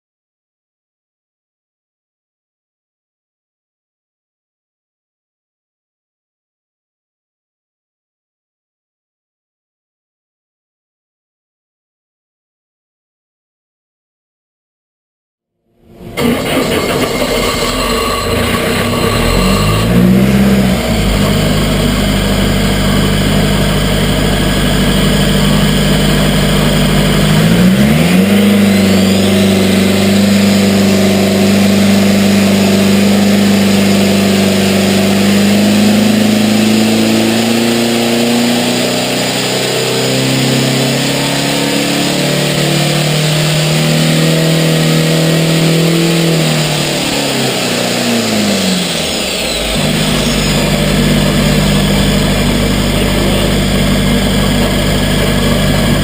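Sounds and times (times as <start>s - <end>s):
vehicle engine running under load: 15.8s - 56.0s.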